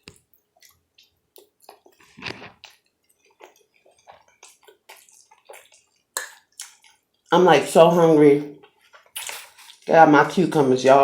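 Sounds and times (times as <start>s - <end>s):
person chewing: 0.0s - 7.3s, 8.6s - 9.9s.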